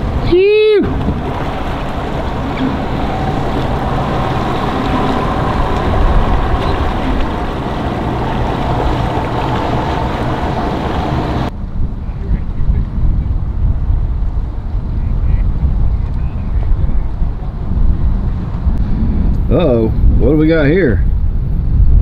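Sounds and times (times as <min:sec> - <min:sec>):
boat motors running: 0:00.0 - 0:11.5
water noise: 0:00.0 - 0:11.6, 0:12.9 - 0:21.9
wind: 0:00.0 - 0:22.0.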